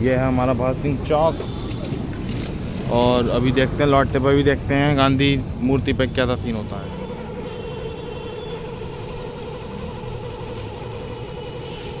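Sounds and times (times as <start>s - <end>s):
vehicle engine running: 5.1s - 12.0s.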